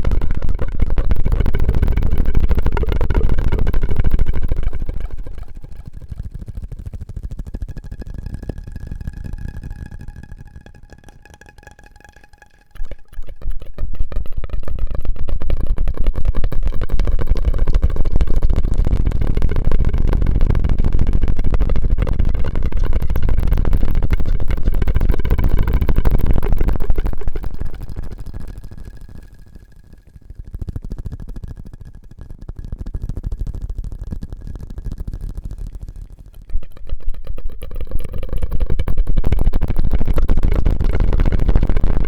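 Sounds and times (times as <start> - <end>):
rapid crackling clicks: 0.0 - 42.0
mouth and straw sounds: 7.8 - 14.9.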